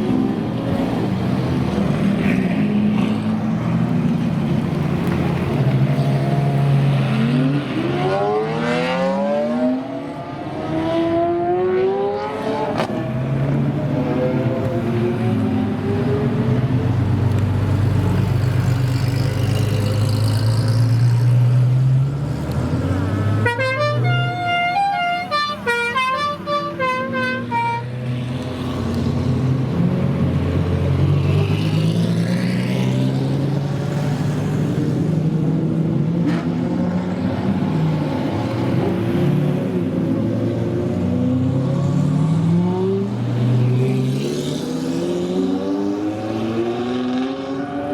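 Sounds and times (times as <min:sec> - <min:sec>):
car engines revving: 0:00.0 - 0:47.9
car horn playing a tune: 0:23.4 - 0:28.0.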